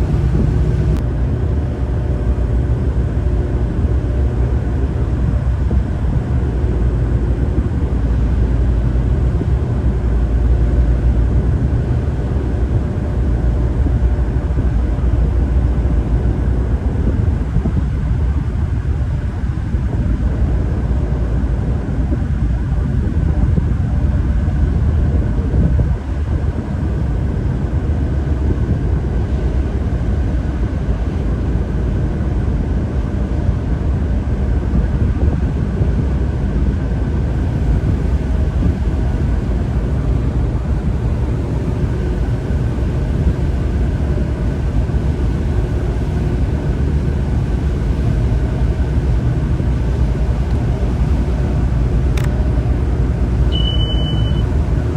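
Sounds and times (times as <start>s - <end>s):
faint steady tones: 0.0s - 1.0s, 47.4s - 54.9s
tugboat engine rumbling: 0.0s - 54.9s.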